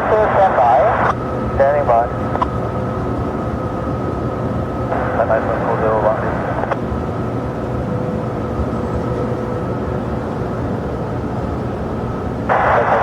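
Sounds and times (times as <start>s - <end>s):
radio hiss: 0.0s - 2.1s, 4.9s - 6.8s, 12.5s - 13.0s
jet engines rumbling: 0.0s - 13.0s.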